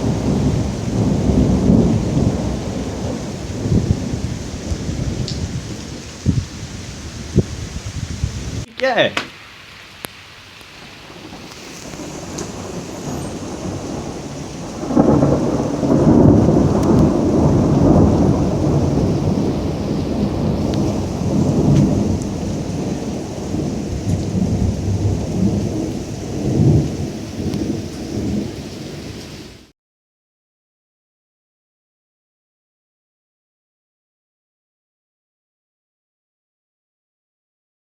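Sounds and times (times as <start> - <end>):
thunder rolling: 0.0 - 8.7, 10.8 - 29.3
steady rain hiss: 0.0 - 29.7.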